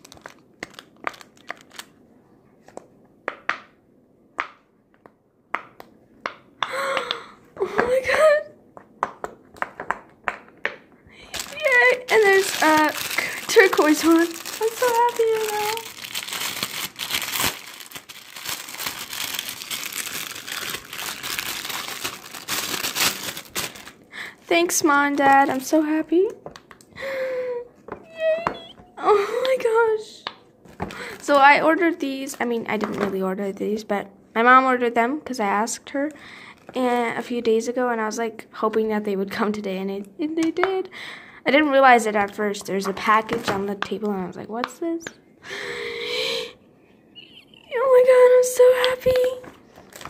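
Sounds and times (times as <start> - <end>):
packaging crinkling and rustling: 0.0 - 2.0, 11.2 - 25.8, 49.2 - 50.0.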